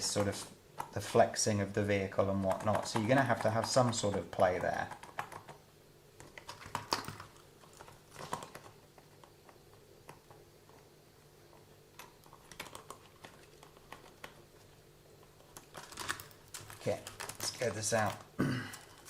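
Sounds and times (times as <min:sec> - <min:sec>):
faint steady hum: 0:00.0 - 0:19.0
small plastic parts clicking: 0:15.4 - 0:19.0.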